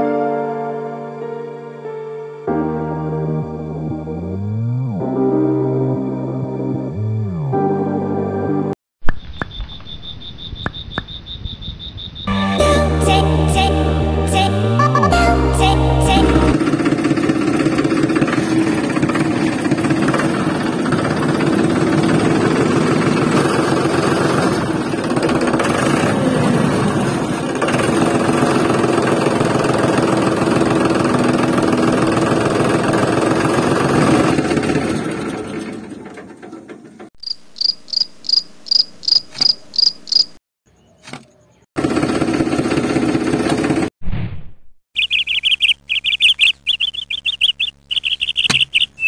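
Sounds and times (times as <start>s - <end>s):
tractor engine running: 15.0s - 40.2s, 41.8s - 43.9s, 45.0s - 49.0s
short high-pitched chirps: 45.0s - 49.0s.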